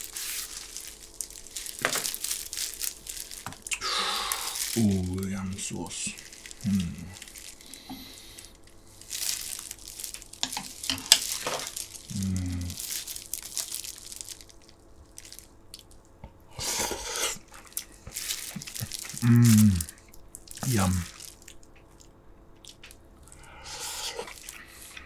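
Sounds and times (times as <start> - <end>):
wet chewing and lip smacks: 3.4 - 4.8, 21.3 - 25.0
short low hums: 3.7 - 8.2, 12.1 - 12.8.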